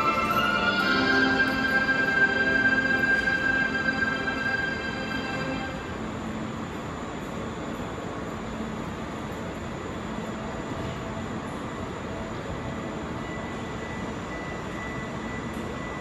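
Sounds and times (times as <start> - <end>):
faint high whine: 0.0 - 16.0
train equipment hum and hiss: 0.0 - 16.0.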